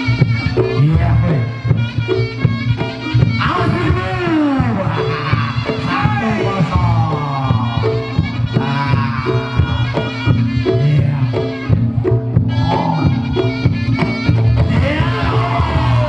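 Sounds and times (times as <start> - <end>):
drums and gongs: 0.0 - 16.0
shawm melody: 0.0 - 16.0.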